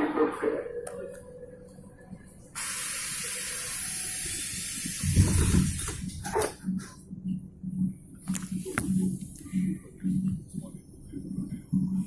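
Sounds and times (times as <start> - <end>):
compressed air hissing: 2.6 - 6.0
train car thump and rumble: 4.9 - 7.0.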